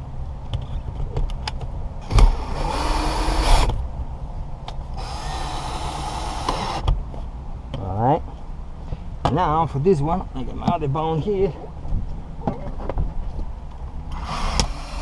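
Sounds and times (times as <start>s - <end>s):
drill running: 2.1s - 3.7s, 5.0s - 6.8s, 14.1s - 15.0s.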